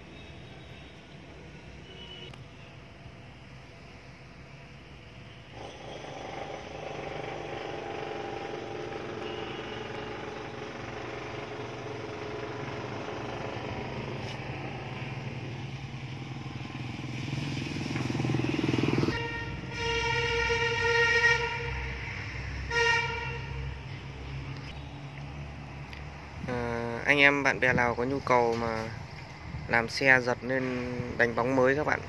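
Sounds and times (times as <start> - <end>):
motorcycle engine running: 5.5 - 19.8.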